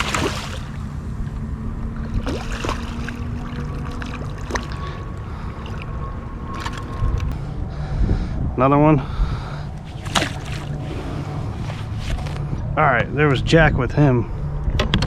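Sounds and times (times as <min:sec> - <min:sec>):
water lapping against kayak: 0:00.0 - 0:07.4, 0:09.6 - 0:12.4
low rumble: 0:00.0 - 0:14.9.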